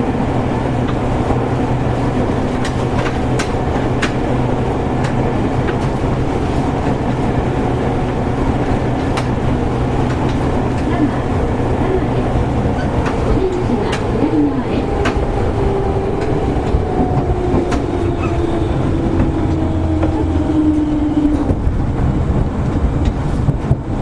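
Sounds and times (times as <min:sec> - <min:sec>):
train traction motor hum: 0:00.0 - 0:24.0
wheels clicking over rail joints: 0:00.0 - 0:24.0.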